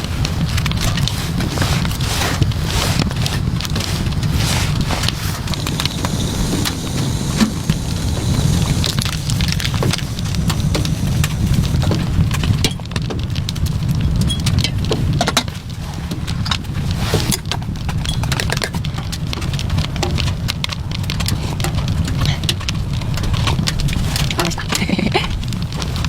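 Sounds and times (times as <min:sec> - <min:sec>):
raindrops tapping on a surface: 0:00.1 - 0:26.0
steady low rumble: 0:02.3 - 0:14.1.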